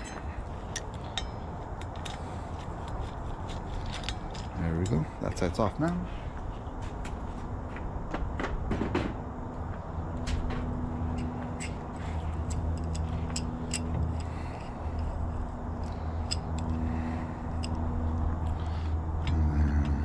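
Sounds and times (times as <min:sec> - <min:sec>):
low hum: 0:00.0 - 0:05.2, 0:05.8 - 0:20.0
metallic tool clicks and taps: 0:11.1 - 0:16.9, 0:17.5 - 0:18.2.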